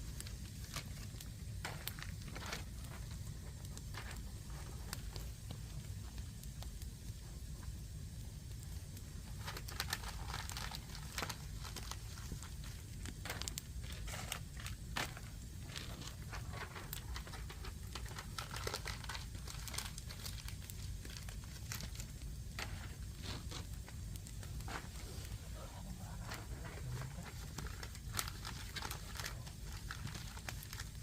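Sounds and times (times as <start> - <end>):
steady low rumble: 0.0 - 31.0
wood fire crackling: 0.0 - 31.0.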